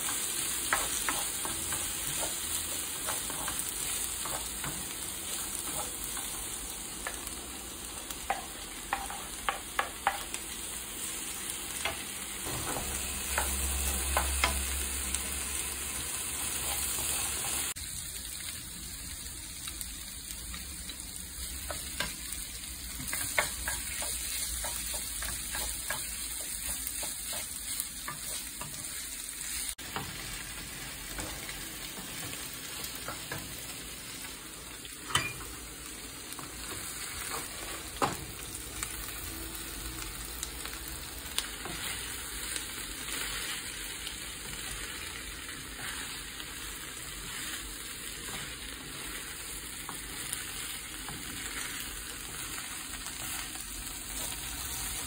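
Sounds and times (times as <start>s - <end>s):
vegetables sizzling in a skillet: 0.0s - 55.0s
wooden spoon stirring and scraping: 23.0s - 32.3s.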